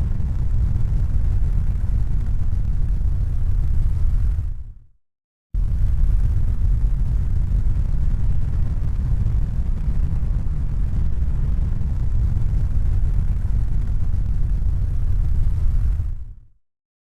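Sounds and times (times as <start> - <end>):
steady low rumble: 0.0 - 4.8, 5.6 - 16.5.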